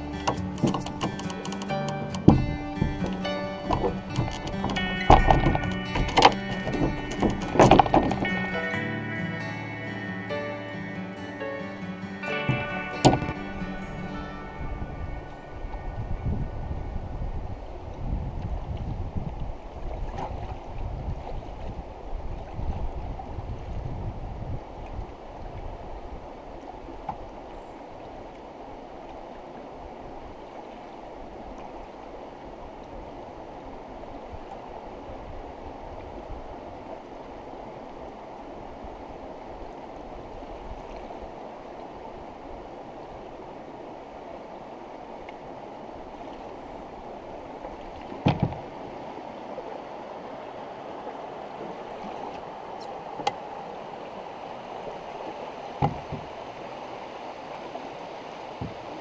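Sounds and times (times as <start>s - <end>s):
river water rushing over rocks: 0.0s - 59.0s
faint clicks: 0.2s - 2.2s.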